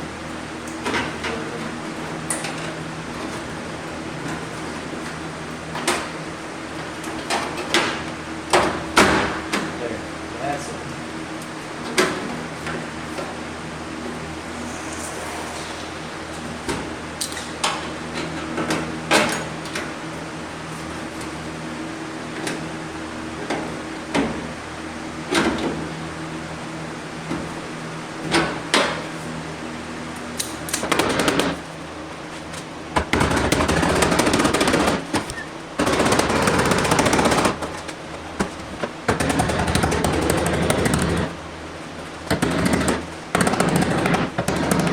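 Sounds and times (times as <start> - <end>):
steady low hum: 10.7 - 19.0.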